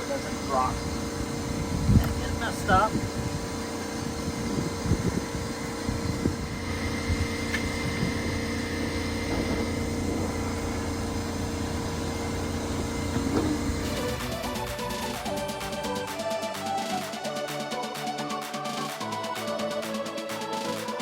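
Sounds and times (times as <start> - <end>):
mechanical hum: 0.0 - 16.1.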